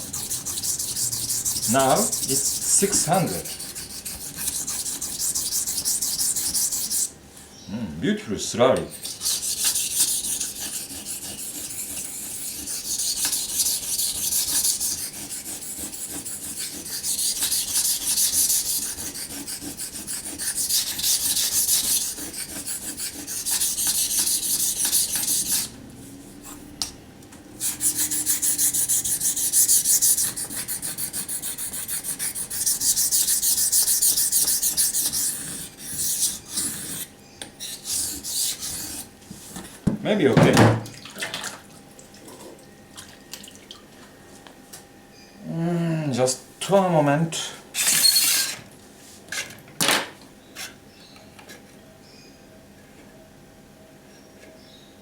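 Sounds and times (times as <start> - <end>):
knife scraping on wet whetstone: 0.0 - 7.1, 8.9 - 25.7, 27.6 - 39.7.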